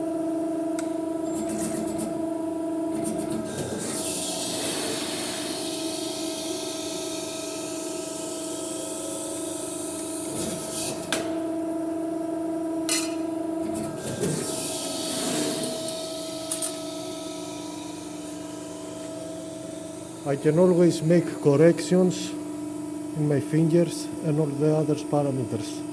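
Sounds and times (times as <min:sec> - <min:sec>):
press brake machine hum: 0:00.7 - 0:22.8.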